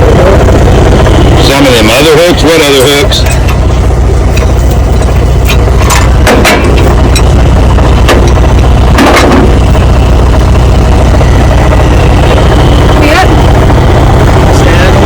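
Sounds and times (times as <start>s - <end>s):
vehicle engine idling: 0.0s - 15.0s
sharp knocks: 5.4s - 7.3s, 8.0s - 9.6s.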